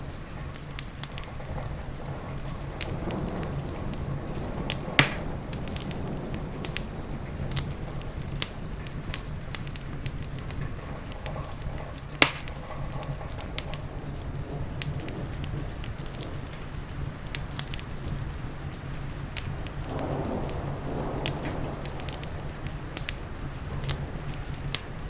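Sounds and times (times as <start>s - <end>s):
heavy rain: 0.0s - 25.0s
low even rumble: 0.0s - 25.0s
wood fire crackling: 0.0s - 25.0s.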